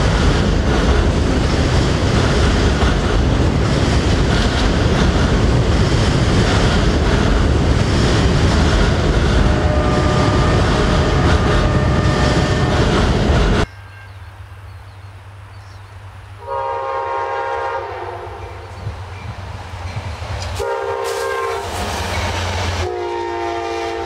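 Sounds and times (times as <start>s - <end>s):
train wheels clattering on rails: 0.0s - 13.7s, 18.8s - 22.9s
train horn: 9.4s - 14.2s, 16.4s - 18.7s, 20.6s - 21.8s, 22.8s - 24.0s.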